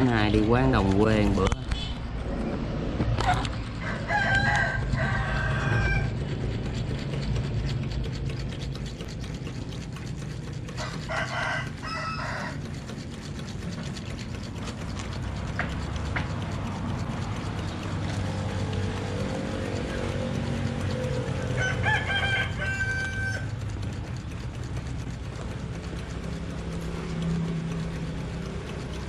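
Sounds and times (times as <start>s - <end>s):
rooster crowing: 3.8s - 6.3s, 10.8s - 12.6s, 21.5s - 23.5s.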